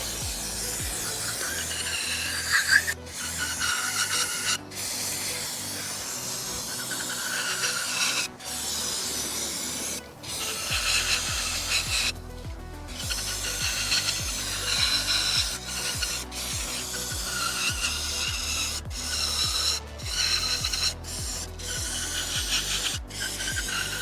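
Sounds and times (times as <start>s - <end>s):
rag rubbing metal: 0.0s - 24.0s.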